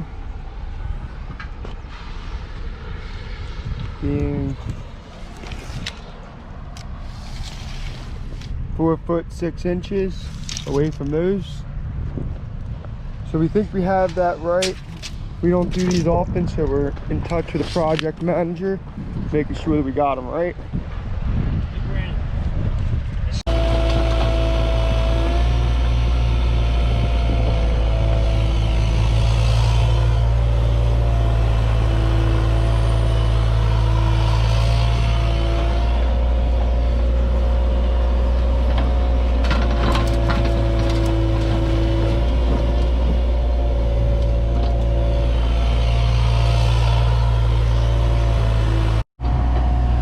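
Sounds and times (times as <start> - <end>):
mini excavator diesel engine: 23.4 - 50.0.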